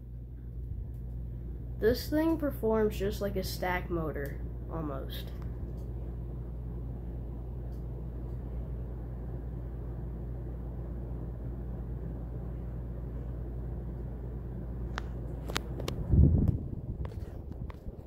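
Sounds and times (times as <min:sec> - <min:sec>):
ceiling fan whirring: 0:00.0 - 0:18.0
faint ticks of fan: 0:00.3 - 0:02.5, 0:05.2 - 0:06.0, 0:07.6 - 0:08.6.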